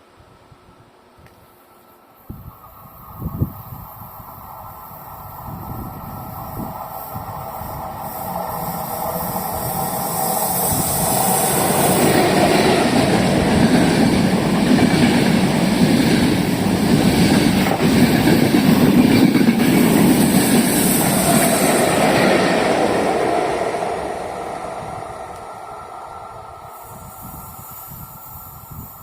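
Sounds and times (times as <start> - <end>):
train passing on rails: 0.0 - 29.0.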